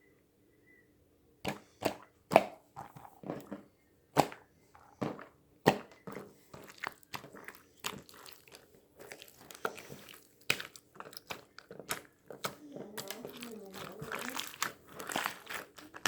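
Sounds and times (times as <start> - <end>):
crisp crunches and clicks: 6.6 - 16.0.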